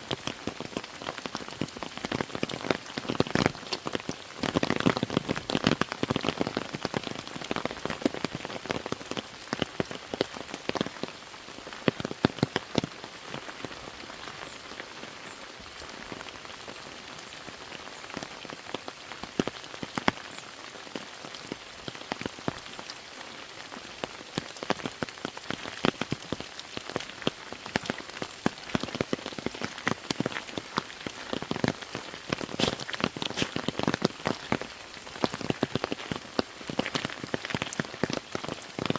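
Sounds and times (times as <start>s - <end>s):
raindrops ticking: 0.0s - 38.9s
rain hissing: 23.0s - 38.9s.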